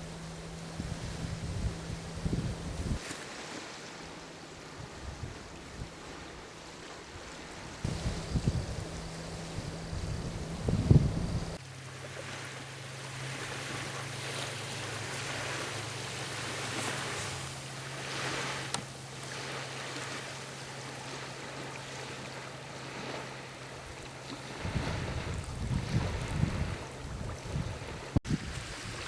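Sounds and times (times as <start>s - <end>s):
steady low hum: 0.0s - 3.0s, 7.8s - 28.0s
wind buffeting microphone: 0.0s - 3.0s, 7.8s - 11.6s, 23.8s - 29.0s
small waves lapping on shore: 0.0s - 29.0s.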